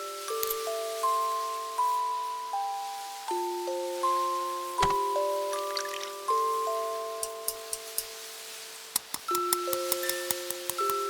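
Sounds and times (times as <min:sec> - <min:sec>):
music box melody: 0:00.0 - 0:08.0, 0:09.3 - 0:11.0
short knock: 0:04.8 - 0:05.1.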